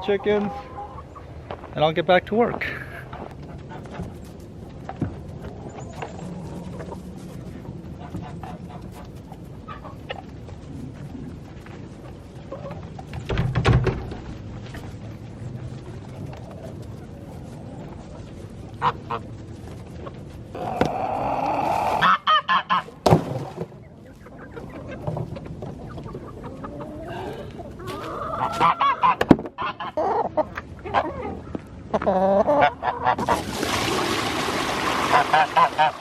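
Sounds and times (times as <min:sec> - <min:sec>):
poultry calling: 0:00.0 - 0:01.4, 0:07.9 - 0:10.3, 0:20.0 - 0:22.9, 0:24.0 - 0:33.3.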